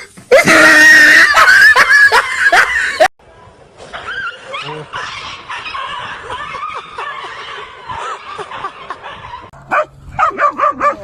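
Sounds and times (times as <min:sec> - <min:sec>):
high-pitched laughter and snickering: 0:04.0 - 0:09.5.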